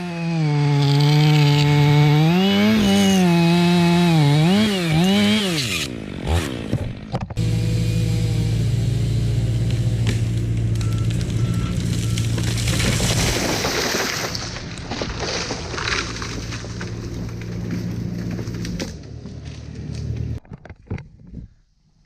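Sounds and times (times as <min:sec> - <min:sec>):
loader engine running: 0:06.9 - 0:12.8, 0:16.6 - 0:20.4
tree cracking and crashing down: 0:09.5 - 0:20.3.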